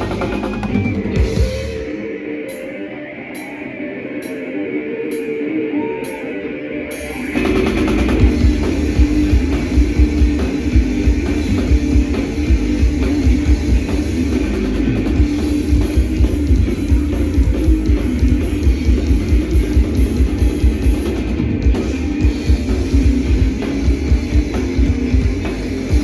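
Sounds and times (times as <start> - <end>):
fast drumming on drum kit: 0.0 - 1.8, 7.4 - 26.0
bass guitar: 0.0 - 2.6, 7.0 - 26.0
distorted electric guitars: 0.0 - 26.0.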